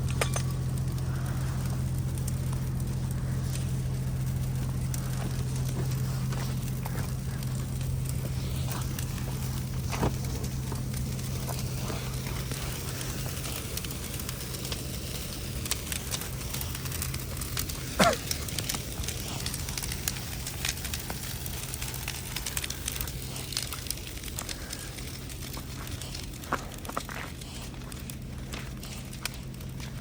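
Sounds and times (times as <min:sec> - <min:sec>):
bonfire crackling: 0:00.0 - 0:30.0
low hum: 0:00.0 - 0:30.0.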